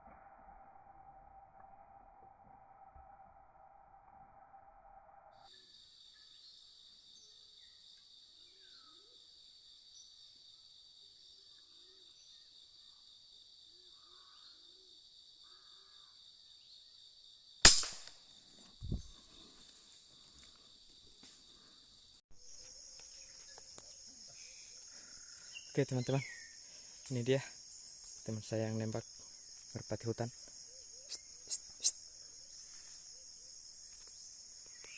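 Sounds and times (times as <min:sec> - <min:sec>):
insects droning: 0:00.9 - 0:34.9
air rifle shot crack: 0:17.6 - 0:18.2.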